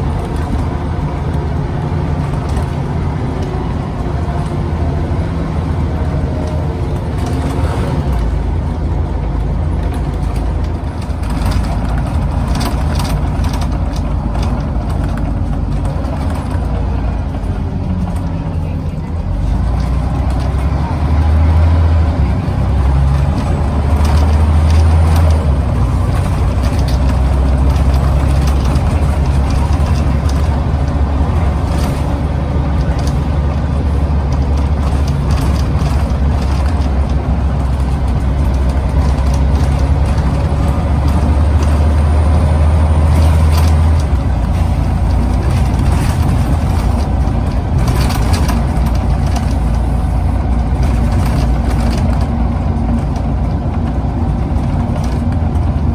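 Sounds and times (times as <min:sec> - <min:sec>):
clicks and rattles: 0:00.0 - 0:18.5, 0:19.4 - 0:55.9
bus diesel engine running: 0:00.0 - 0:55.9.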